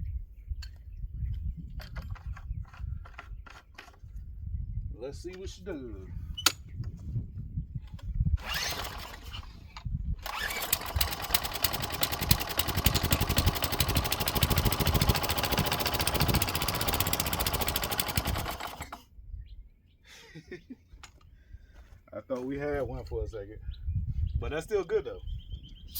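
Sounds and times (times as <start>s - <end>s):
engine sputtering: 8.4s - 9.5s, 10.2s - 19.0s
small gasoline engine running: 8.4s - 9.5s, 10.2s - 19.0s.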